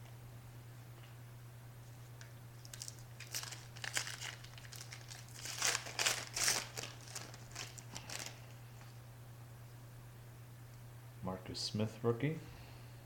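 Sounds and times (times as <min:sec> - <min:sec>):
foil wrapper crinkling: 0:02.2 - 0:08.9.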